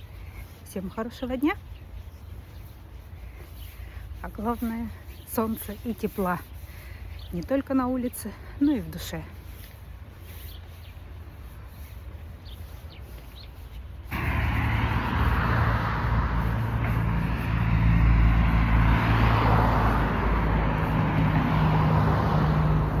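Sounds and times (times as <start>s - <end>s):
road and wind noise: 0.0s - 23.0s
vehicle engine hum: 14.0s - 23.0s.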